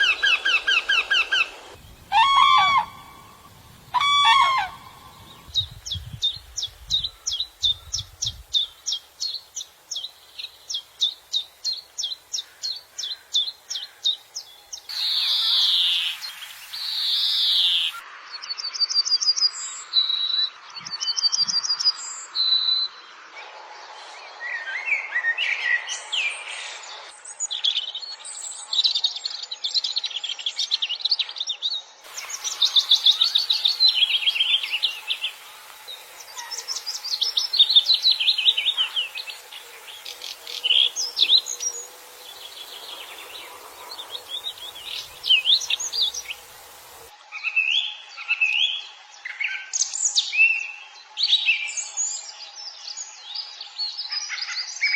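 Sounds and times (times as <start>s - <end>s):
songbirds singing: 0.0s - 23.0s, 26.9s - 47.1s.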